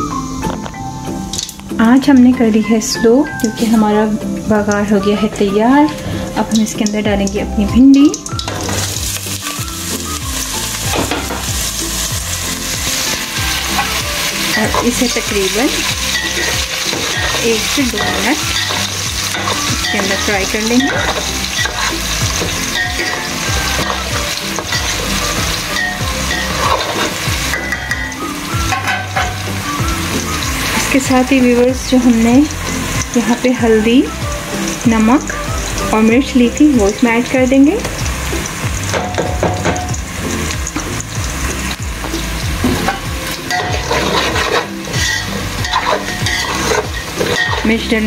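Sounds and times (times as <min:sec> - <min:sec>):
background music: 0:00.0 - 0:48.0
vegetables sizzling in hot oil: 0:00.0 - 0:48.0
metal spatula scraping pot: 0:08.2 - 0:09.3, 0:10.8 - 0:29.6, 0:42.6 - 0:48.0.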